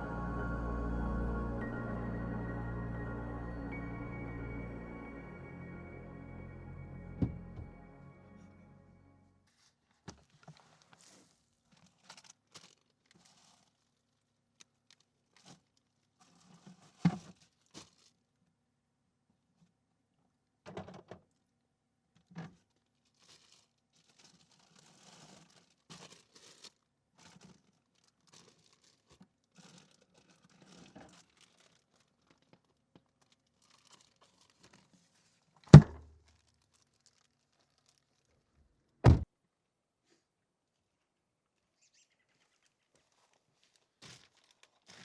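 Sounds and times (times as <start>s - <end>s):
soft rustling and crinkling: 22.4s - 38.5s, 42.3s - 45.0s.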